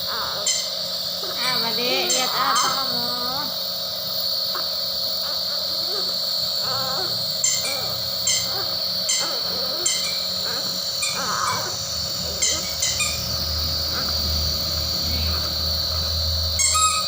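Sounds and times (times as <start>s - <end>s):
steady high-pitched buzz: 0.0s - 17.0s.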